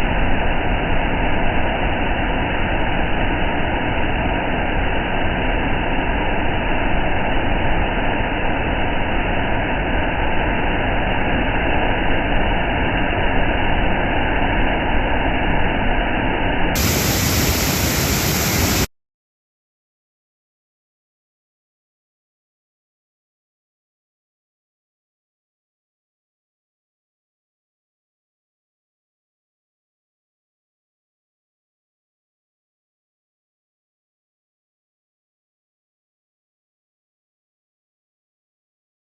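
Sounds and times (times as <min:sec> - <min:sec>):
loud steady rushing noise: 0:00.0 - 0:18.9.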